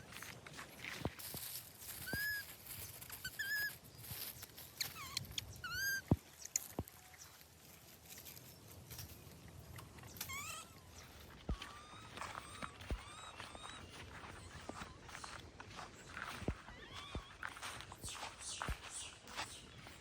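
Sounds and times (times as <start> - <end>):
baby monkeys squeaking: 1.8 - 3.9, 4.7 - 7.3, 9.8 - 18.6.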